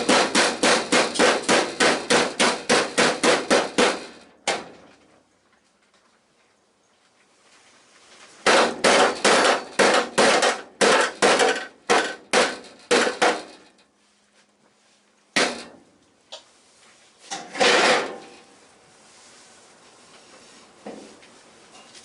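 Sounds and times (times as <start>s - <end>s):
hammer striking steel panel: 0.0s - 4.8s, 8.4s - 13.8s, 15.4s - 15.8s, 17.4s - 18.4s.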